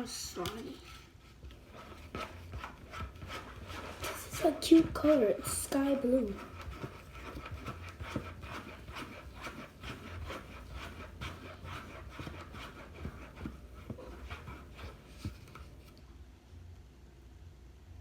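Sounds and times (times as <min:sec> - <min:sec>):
slime being stirred: 0:00.0 - 0:16.0.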